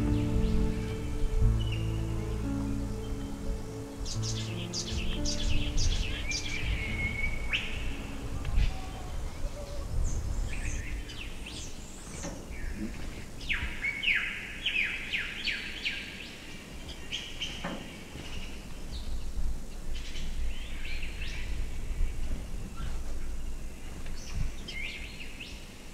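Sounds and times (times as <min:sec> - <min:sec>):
low background rumble: 0:00.0 - 0:12.0
small birds chirping: 0:00.0 - 0:19.4.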